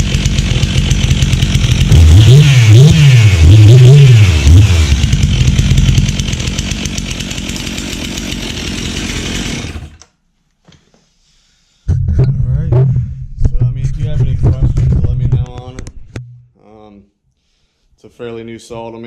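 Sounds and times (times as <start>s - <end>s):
chainsaw engine revving and idling: 0.0s - 10.1s
loud low rumble: 11.9s - 16.4s.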